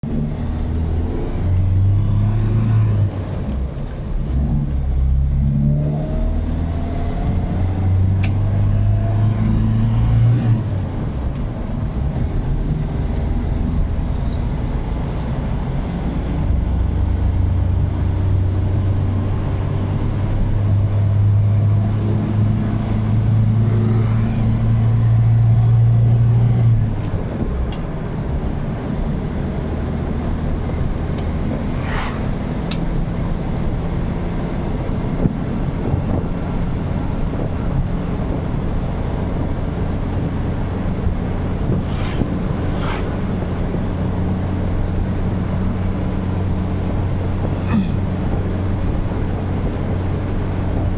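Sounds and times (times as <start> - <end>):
car engine humming: 0.0 - 50.9
road noise: 0.0 - 50.9.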